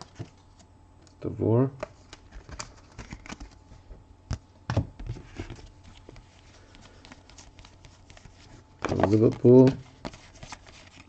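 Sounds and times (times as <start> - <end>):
cards being flipped through: 1.8 - 3.6, 5.1 - 11.0.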